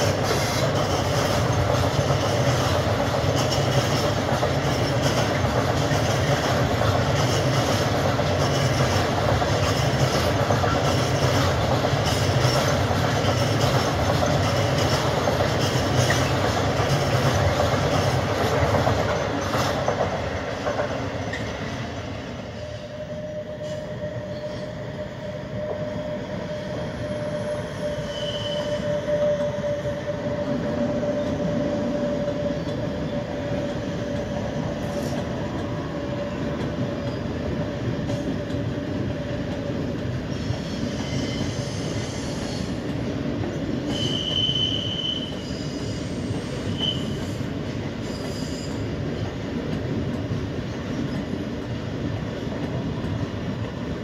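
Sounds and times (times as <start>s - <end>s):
train rumbling past: 0.0s - 54.0s
high-pitched wheel squeals: 22.5s - 31.5s, 40.3s - 42.8s, 43.9s - 47.4s, 48.0s - 48.9s.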